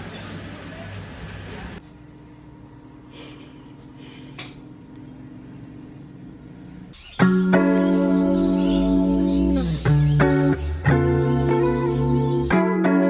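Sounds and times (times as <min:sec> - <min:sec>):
plucked guitar music: 0:07.2 - 0:13.0.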